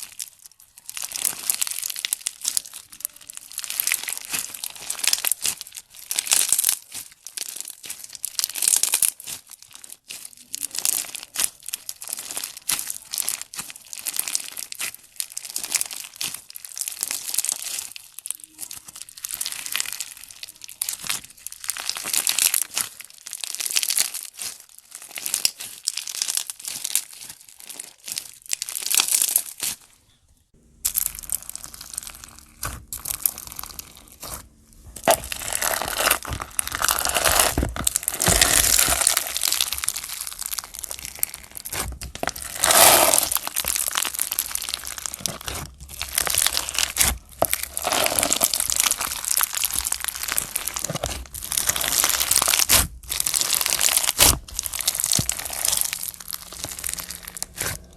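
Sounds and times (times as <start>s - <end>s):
slime squeezed by hand: 30.8s - 57.9s.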